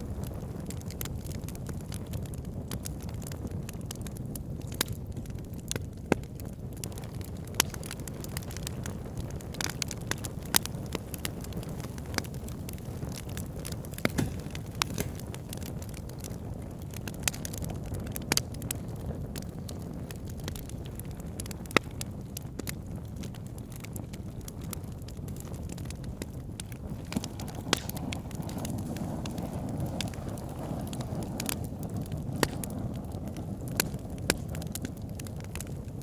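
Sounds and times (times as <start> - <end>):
burning wood crackling and popping: 0.0 - 36.0
low rumble of flames: 0.0 - 36.0.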